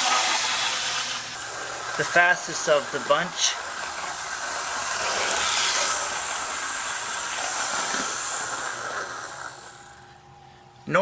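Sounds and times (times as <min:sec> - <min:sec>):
model locomotive motor whirring: 0:00.0 - 0:10.5
thin high whine: 0:00.0 - 0:11.0.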